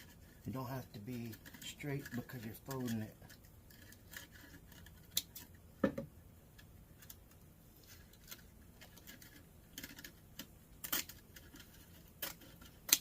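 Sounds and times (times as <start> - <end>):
scissors snipping: 10.8 - 11.6, 12.2 - 13.0.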